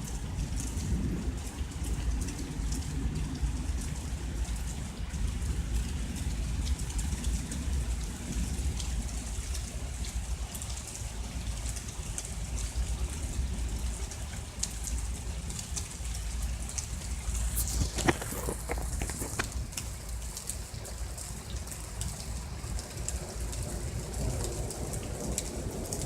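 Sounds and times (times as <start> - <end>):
low thunder rumble: 0.0 - 9.2, 22.3 - 26.0
rain drops ticking: 0.0 - 26.0.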